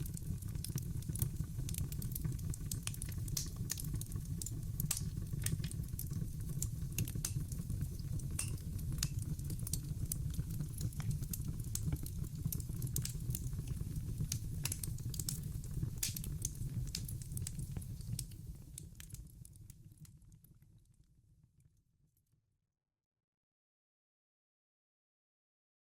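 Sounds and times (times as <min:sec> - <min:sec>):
fire low rumble: 0:00.0 - 0:19.4
logs crackling and popping: 0:00.0 - 0:20.2.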